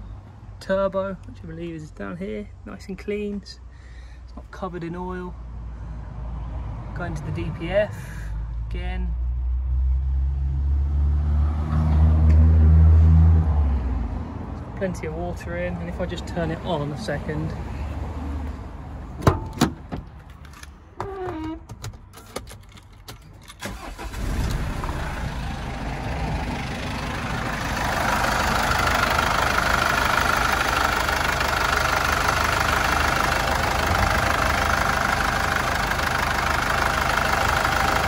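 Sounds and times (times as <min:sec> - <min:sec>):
diesel engine starting and idling: 0:23.2 - 0:38.0.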